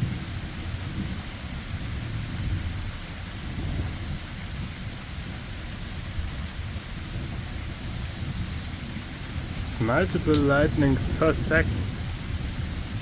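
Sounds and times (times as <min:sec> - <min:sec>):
rolling thunder: 0:00.0 - 0:13.0
steady rain: 0:00.0 - 0:13.0.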